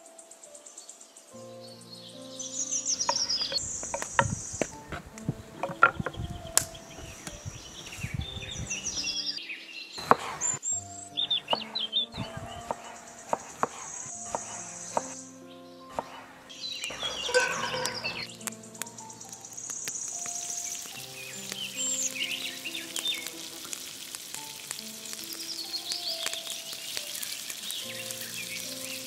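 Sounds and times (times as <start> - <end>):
insects buzzing: 0.0 - 9.4, 10.0 - 29.0
soft background music: 0.0 - 29.0
birds chirping: 0.2 - 29.0
knife chopping on wooden board: 10.0 - 10.6, 11.5 - 15.1, 15.9 - 16.2.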